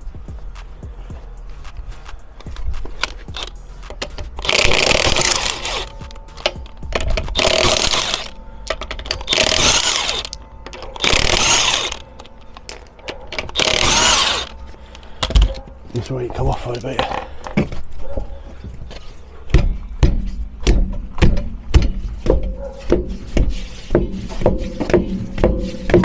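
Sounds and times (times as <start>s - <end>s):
impact wrench bursts: 3.0s - 3.6s, 4.3s - 10.4s, 11.0s - 12.1s, 13.4s - 15.5s.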